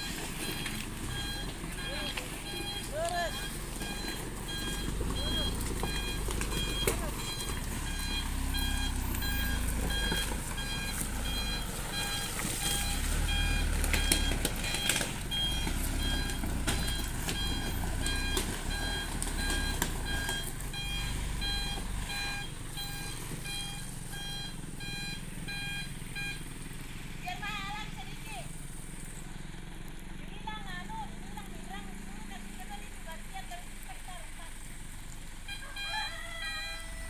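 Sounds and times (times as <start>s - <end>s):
truck reversing beeper: 0.0s - 27.5s, 35.4s - 37.0s
diesel engine running: 0.0s - 37.0s.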